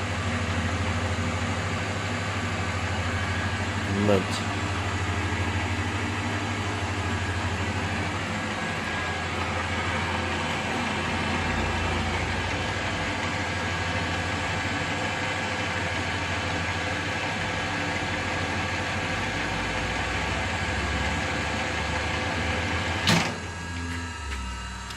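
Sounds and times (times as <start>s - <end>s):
lathe humming: 0.0s - 24.9s.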